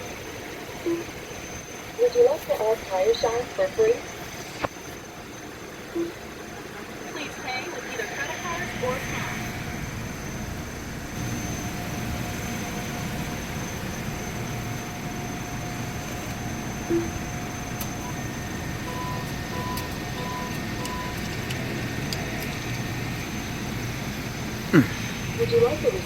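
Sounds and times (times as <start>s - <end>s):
kiosk electronic beeps: 0.0s - 9.4s, 13.6s - 23.7s
car engine idling: 0.0s - 26.0s.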